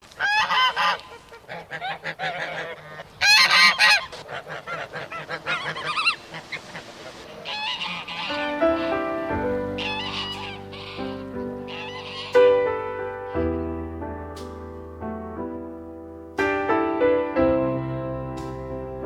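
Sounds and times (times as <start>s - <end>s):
geese honking: 0.1s - 12.6s.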